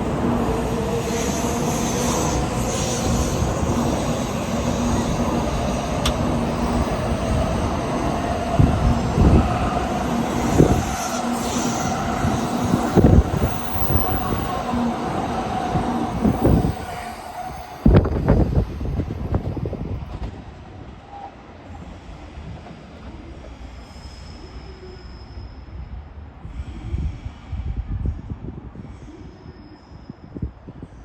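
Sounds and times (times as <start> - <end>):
train rumble: 0.0 - 29.1
train motor whine: 0.6 - 19.0.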